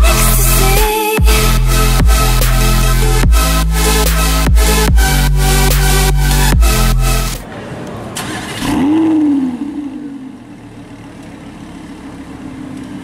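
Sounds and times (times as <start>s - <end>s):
electronic dance music: 0.0s - 7.4s
car engine idling: 0.0s - 13.0s
car engine starting and revving: 0.0s - 13.0s.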